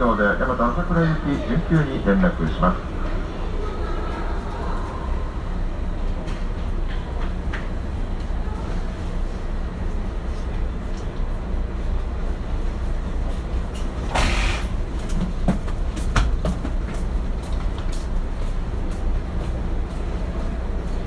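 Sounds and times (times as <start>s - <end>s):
train cabin rumble: 0.0s - 21.0s.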